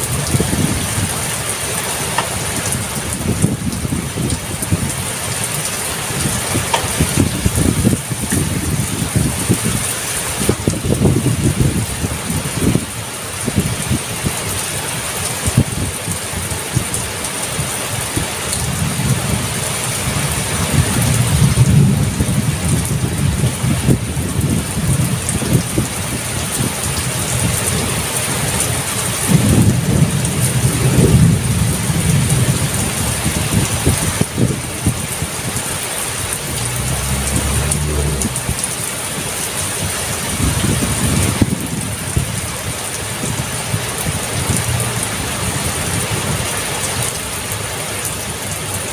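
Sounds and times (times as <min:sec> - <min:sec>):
heavy rain pouring: 0:00.0 - 0:48.9
thunder rumbling: 0:02.1 - 0:09.8, 0:18.8 - 0:28.2, 0:29.2 - 0:42.5.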